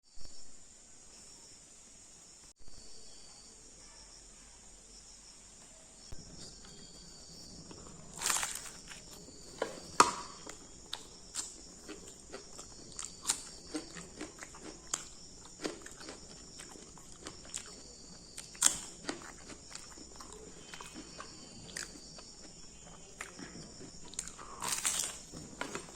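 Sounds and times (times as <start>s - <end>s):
crickets chirring: 0.0s - 25.9s
sharp clicks and crunches: 7.7s - 16.2s, 18.4s - 21.0s, 24.1s - 25.9s.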